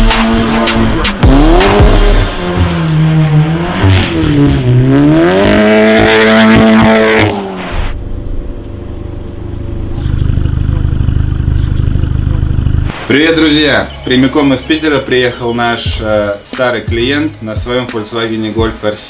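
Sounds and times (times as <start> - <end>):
car engine revving: 0.0 - 15.5
low hum: 6.4 - 13.2.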